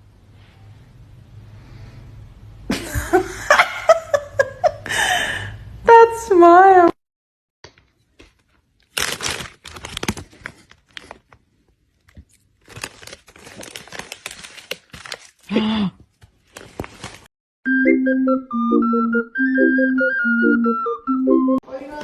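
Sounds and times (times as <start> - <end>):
crinkling and tearing: 7.8 - 17.3.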